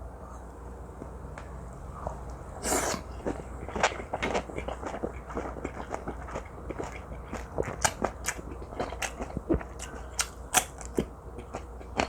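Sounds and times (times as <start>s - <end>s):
person chewing: 2.6s - 12.0s.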